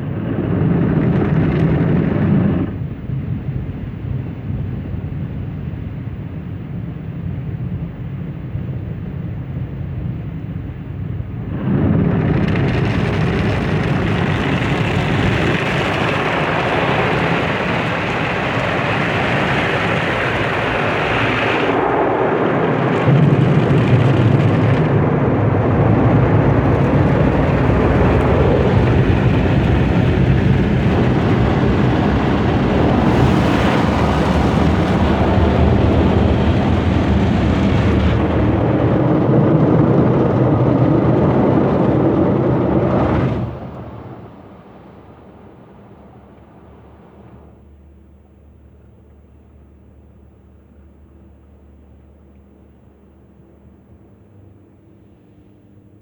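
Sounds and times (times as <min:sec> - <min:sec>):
deep machine drone: 0:00.0 - 0:06.5, 0:08.9 - 0:55.4
car wash low rumble: 0:00.0 - 0:56.0
water spray rushing: 0:26.7 - 0:38.5.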